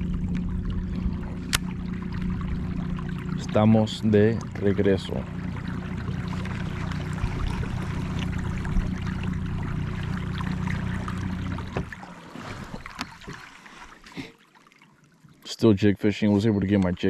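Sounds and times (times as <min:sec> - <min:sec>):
motor humming: 0:00.0 - 0:12.0
water drips and splashes: 0:00.0 - 0:15.6
water rushing along hull: 0:00.0 - 0:17.0.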